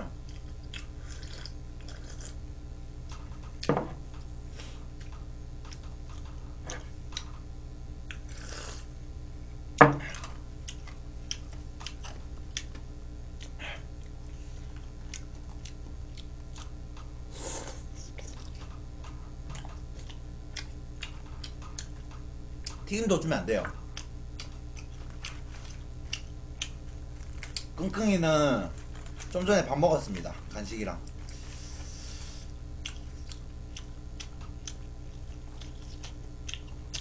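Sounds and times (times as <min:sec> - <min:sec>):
steady low hum: 0:00.0 - 0:37.0
person chewing: 0:00.2 - 0:02.4, 0:08.0 - 0:08.9, 0:10.1 - 0:12.8, 0:13.4 - 0:22.8, 0:23.8 - 0:27.9, 0:28.7 - 0:29.5, 0:30.4 - 0:37.0
knock on the table: 0:03.7 - 0:04.0, 0:09.8 - 0:10.1.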